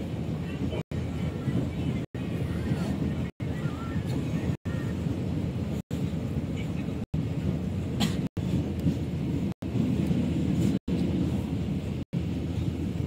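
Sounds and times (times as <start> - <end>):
passenger train rumbling: 0.0 - 13.0.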